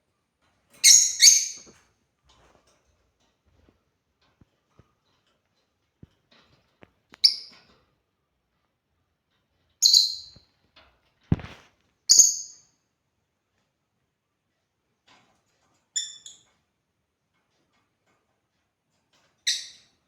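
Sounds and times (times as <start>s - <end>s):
lovebirds chirping: 9.8s - 10.4s.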